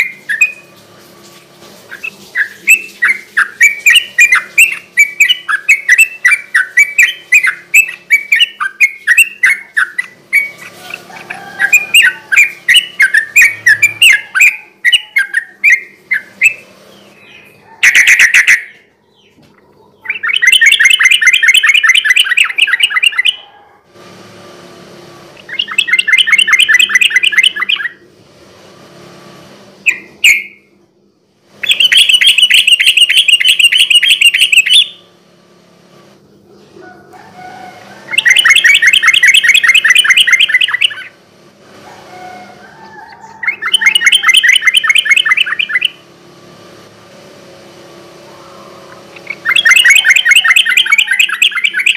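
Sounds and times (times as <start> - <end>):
bird chattering and trilling: 1.9 - 23.5, 25.4 - 28.0, 29.8 - 30.8, 31.6 - 35.1, 36.3 - 41.2, 41.9 - 46.0, 48.3 - 51.9.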